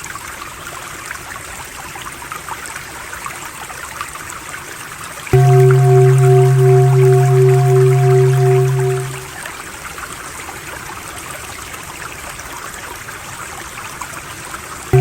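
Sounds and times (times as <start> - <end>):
pulsing low droning hum: 5.4 - 9.3.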